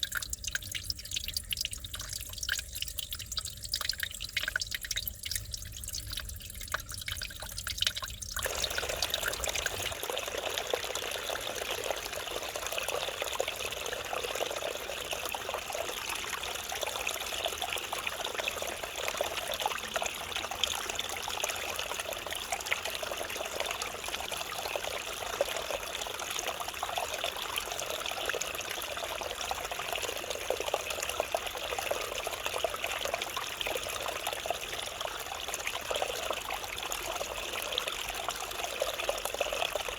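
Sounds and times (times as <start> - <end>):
stream flowing over rocks: 8.4 - 39.9.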